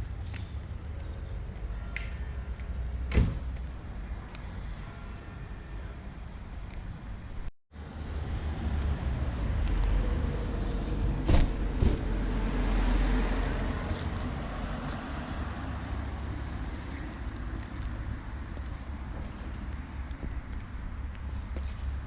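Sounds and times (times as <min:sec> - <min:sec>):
vehicle passing rumble: 0:07.8 - 0:22.0.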